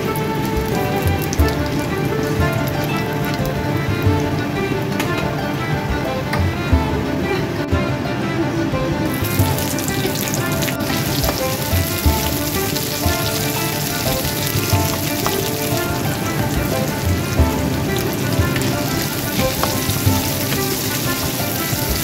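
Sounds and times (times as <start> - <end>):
background music: 0.0 - 22.0
onion sizzling in hot oil: 9.1 - 22.0.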